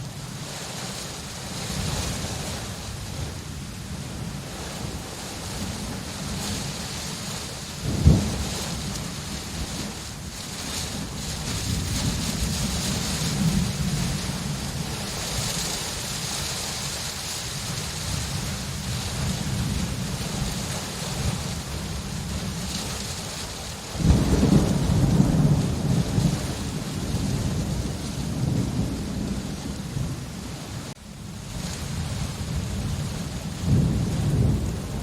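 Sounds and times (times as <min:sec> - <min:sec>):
heavy rain: 0:00.0 - 0:35.0
low rumbling thunder: 0:01.5 - 0:17.0, 0:17.6 - 0:35.0
loud roll of thunder: 0:07.8 - 0:16.4, 0:23.9 - 0:35.0.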